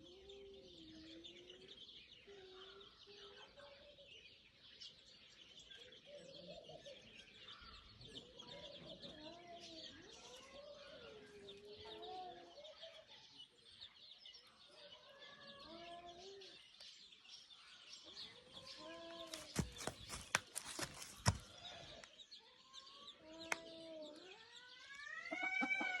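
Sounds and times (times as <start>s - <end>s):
birds calling: 16.4s - 22.3s.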